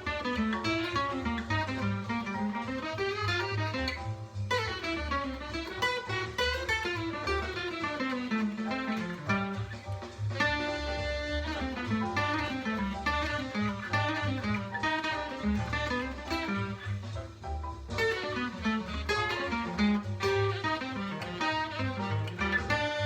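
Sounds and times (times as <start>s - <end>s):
jazz guitar single-note line: 0.0s - 23.0s.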